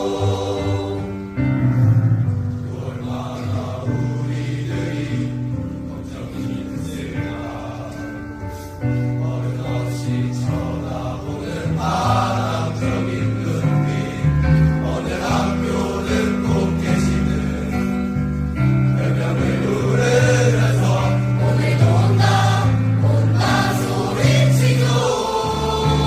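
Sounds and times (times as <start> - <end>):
choir singing: 0.0 - 26.0.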